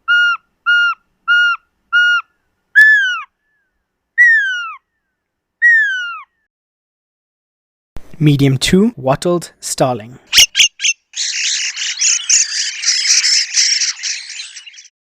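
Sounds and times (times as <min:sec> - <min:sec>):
owlet whistled calls: 0:00.1 - 0:03.3, 0:10.3 - 0:14.9.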